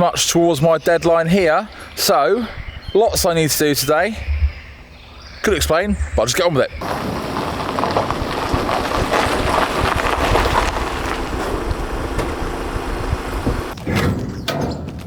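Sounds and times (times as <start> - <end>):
wind buffeting microphone: 2.4 - 14.5
vehicle running noise: 6.8 - 13.8.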